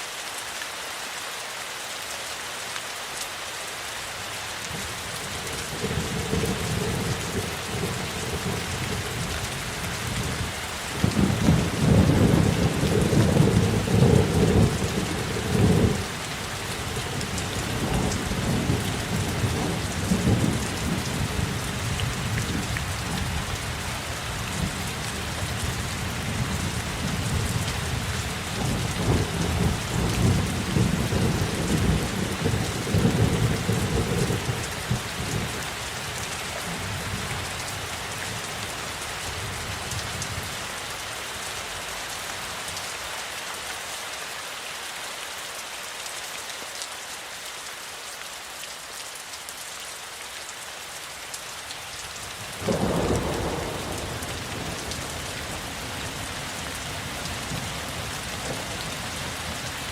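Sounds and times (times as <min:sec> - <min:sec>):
heavy rainfall: 0:00.0 - 0:59.9
rolling thunder: 0:52.6 - 0:55.3.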